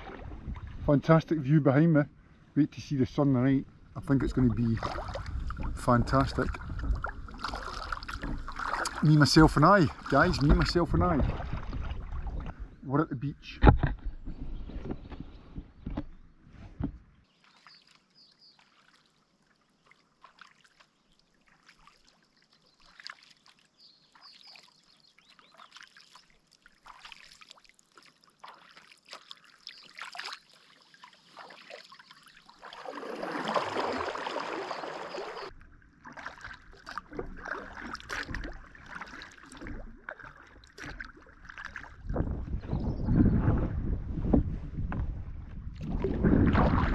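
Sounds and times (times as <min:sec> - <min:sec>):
rush of water: 0:04.0 - 0:12.5, 0:25.5 - 0:42.6
water dripping off paddles: 0:04.0 - 0:12.6, 0:17.3 - 0:41.9.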